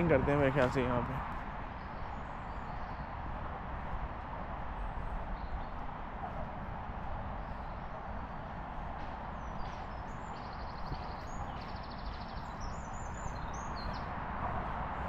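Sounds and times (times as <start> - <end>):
songbird chirping and trilling: 9.4 - 14.2.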